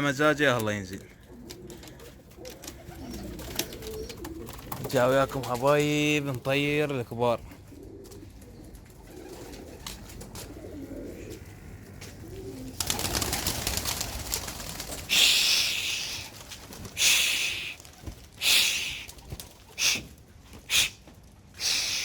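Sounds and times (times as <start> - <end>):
pigeons cooing: 1.0 - 5.3, 7.4 - 22.0
clatter of wingbeats: 1.5 - 6.5, 12.8 - 20.0
loud hissing swishes: 20.7 - 21.0, 21.6 - 22.0.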